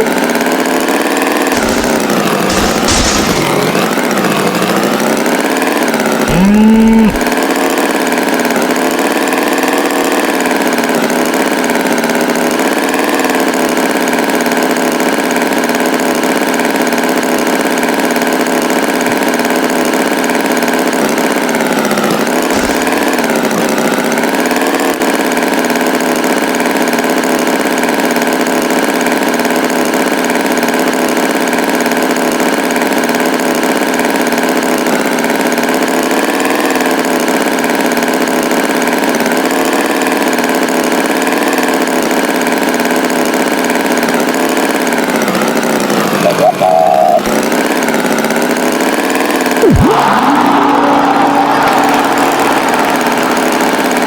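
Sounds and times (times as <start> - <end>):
tractor engine running: 0.0 - 16.0, 16.9 - 26.2, 39.6 - 54.0.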